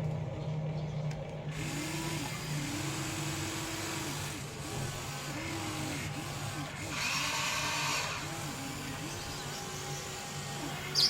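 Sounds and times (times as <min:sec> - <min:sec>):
toy electric motors whirring: 0:01.5 - 0:11.0.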